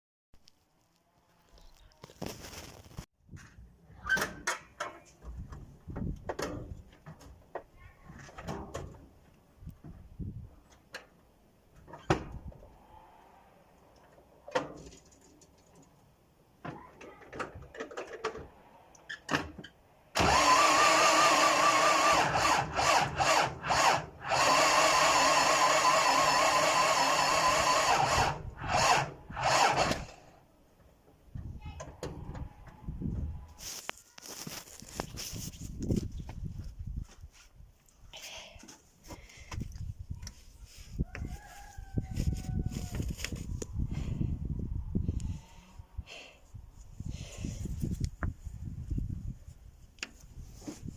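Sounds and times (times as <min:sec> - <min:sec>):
engine starter motor cranking: 0:20.1 - 0:30.3.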